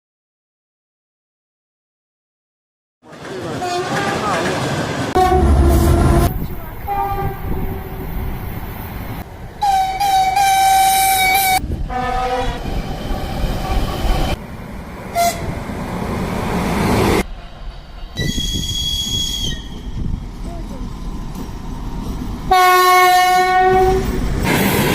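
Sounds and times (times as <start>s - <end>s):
passing train noise: 3.0s - 24.9s
train horn blasts: 5.2s - 7.9s, 9.6s - 12.6s, 15.1s - 15.5s, 22.5s - 24.2s.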